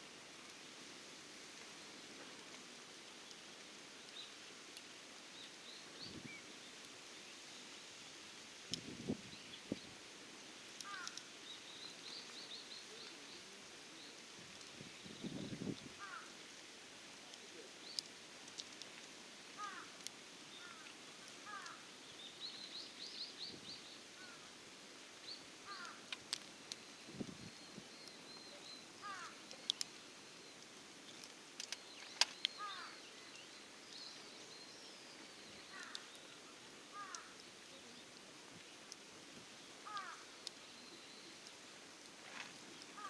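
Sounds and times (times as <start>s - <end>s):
faint outdoor hiss: 0.0s - 43.0s
small birds chirping: 10.6s - 16.4s, 17.2s - 43.0s
wood fire snapping: 10.7s - 11.3s, 17.1s - 21.8s, 25.6s - 28.2s, 28.8s - 32.8s, 35.5s - 40.7s.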